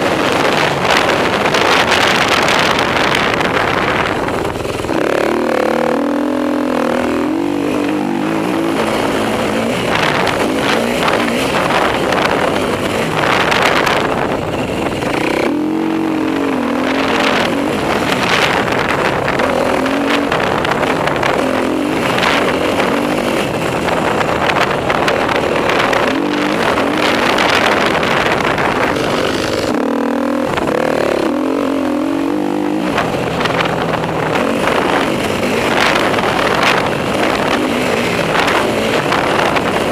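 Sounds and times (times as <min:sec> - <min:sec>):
off-road motorcycle engine revving: 0:00.0 - 0:39.9.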